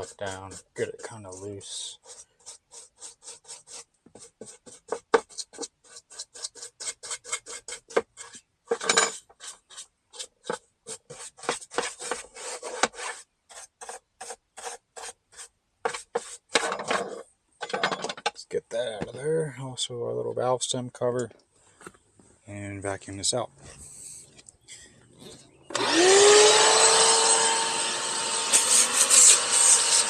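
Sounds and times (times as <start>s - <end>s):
hand brush scrubbing: 0.0s - 8.5s, 9.4s - 17.2s, 28.5s - 30.0s.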